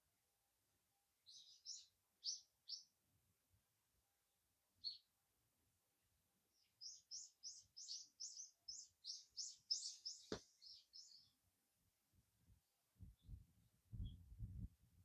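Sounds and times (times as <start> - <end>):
songbird chirping: 1.2 - 3.0, 4.8 - 5.1, 6.5 - 11.4.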